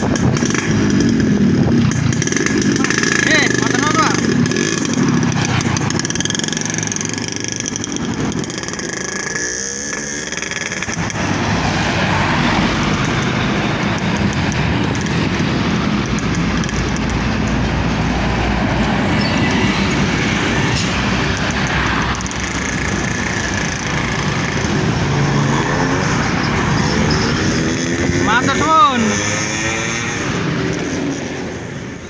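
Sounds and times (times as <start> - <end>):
two-stroke motorcycle engine running: 0.0 - 11.4, 21.2 - 26.2.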